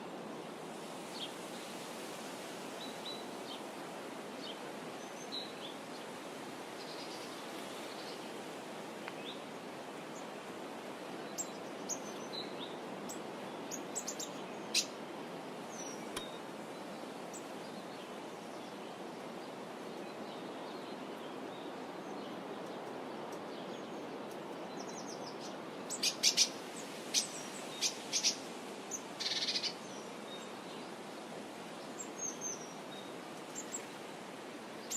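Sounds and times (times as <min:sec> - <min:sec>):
steady background hiss: 0:00.0 - 0:34.9
wild birds chirping: 0:09.2 - 0:34.9.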